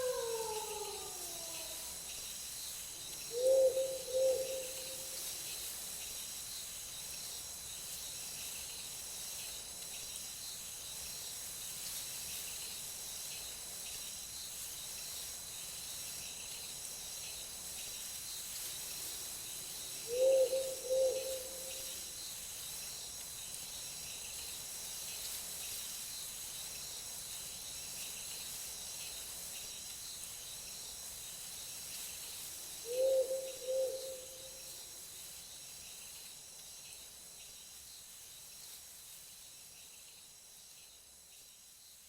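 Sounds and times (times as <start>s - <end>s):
wolf howling: 0.0s - 1.8s
owl hooting: 0.0s - 1.9s, 3.3s - 5.0s, 20.1s - 21.8s, 32.9s - 34.6s
night insects chorus: 0.0s - 42.0s.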